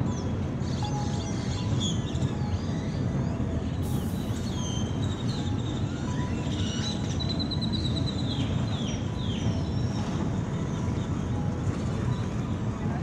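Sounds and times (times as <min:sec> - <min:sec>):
birds chirping and whistling: 0:00.0 - 0:11.4
bird trill: 0:04.2 - 0:10.2.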